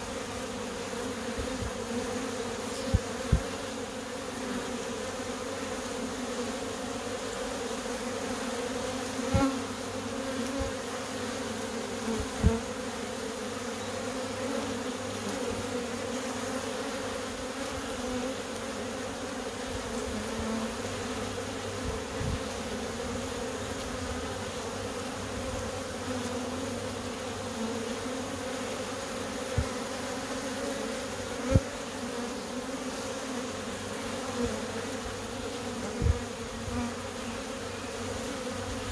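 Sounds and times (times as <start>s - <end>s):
bees humming: 0.0s - 38.9s.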